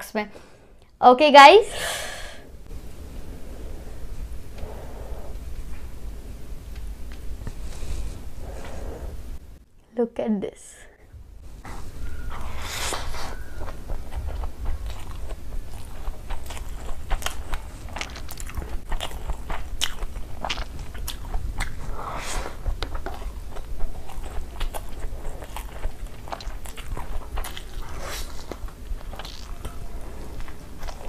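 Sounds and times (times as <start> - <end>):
close-miked chewing: 11.6 - 31.0.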